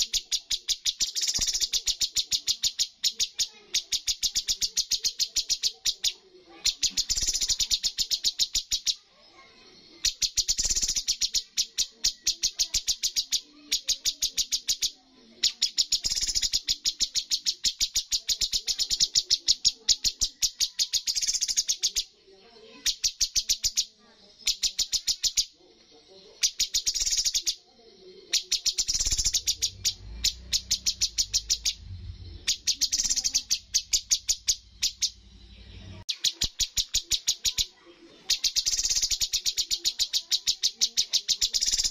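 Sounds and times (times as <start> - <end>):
songbird singing sharp repeated notes: 0.0 - 41.9
faint low hum: 27.7 - 37.2.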